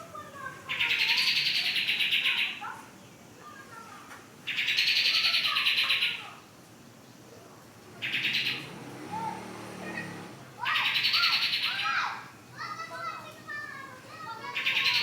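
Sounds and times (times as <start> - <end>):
songbird high-pitched trills: 8.0 - 8.8, 10.7 - 12.0.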